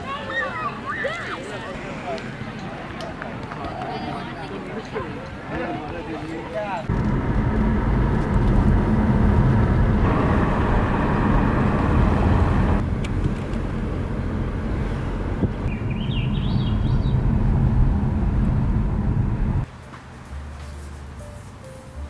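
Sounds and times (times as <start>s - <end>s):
loud low rumbling noise: 6.9s - 19.7s
bird chirps: 15.7s - 17.3s.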